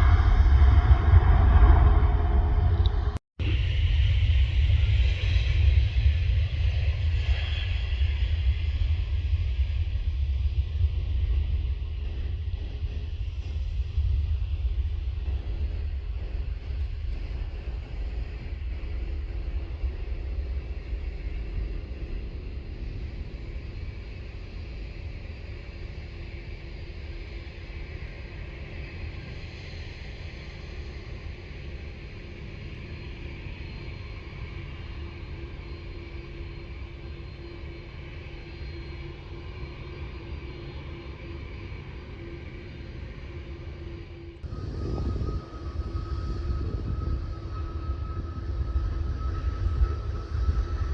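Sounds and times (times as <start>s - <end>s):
jet engine rumble: 0.0s - 50.9s
faint high whine: 15.3s - 50.9s.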